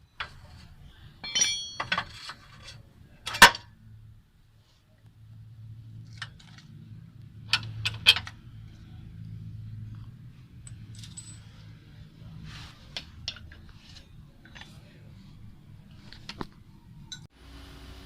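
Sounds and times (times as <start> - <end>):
metal tools clinking: 1.2 - 3.5, 10.6 - 11.7.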